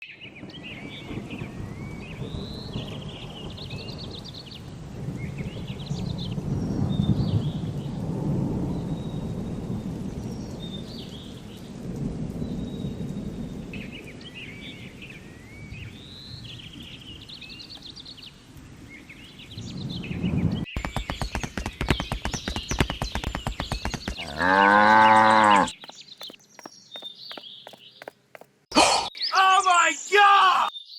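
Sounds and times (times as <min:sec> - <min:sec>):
birds chirping and trilling: 0:12.4 - 0:30.9
cow mooing: 0:24.2 - 0:25.7.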